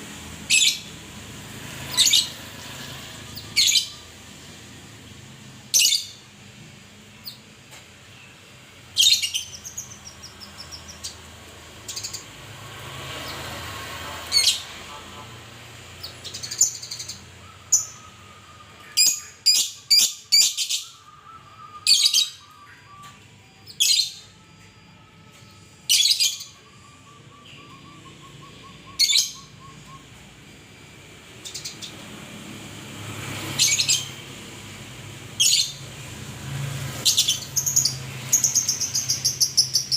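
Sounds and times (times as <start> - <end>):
songbird high calls: 25.9 - 30.2.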